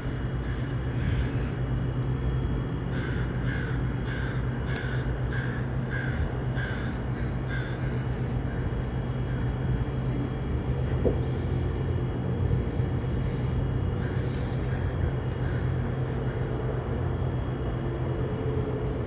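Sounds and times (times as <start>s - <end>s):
steady low hum: 0.0s - 19.0s
crow cawing: 0.4s - 1.5s, 2.9s - 8.7s, 14.0s - 16.5s.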